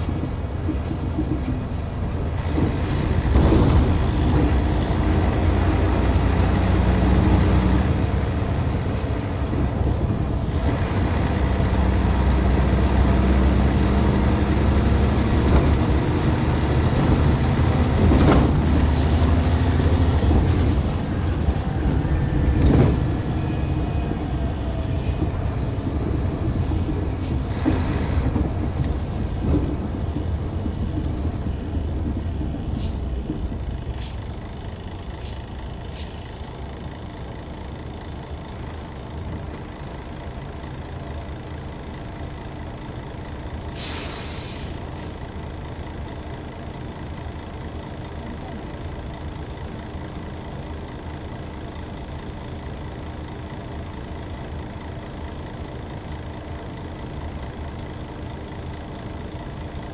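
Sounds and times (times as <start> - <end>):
diesel engine idling: 0.0 - 59.9
air brake hiss: 34.0 - 34.4, 35.2 - 36.6, 43.7 - 45.2.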